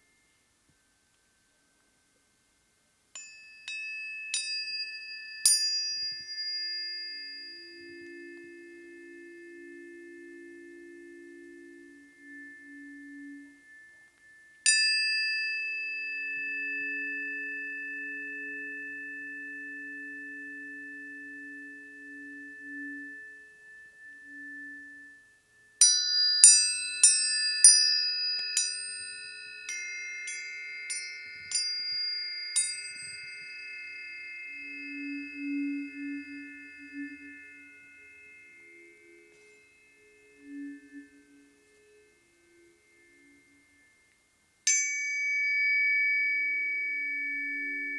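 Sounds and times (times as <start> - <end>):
tuning forks ringing: 3.2 - 47.9
faint lower tone: 7.2 - 14.6, 15.8 - 25.8, 28.4 - 44.4.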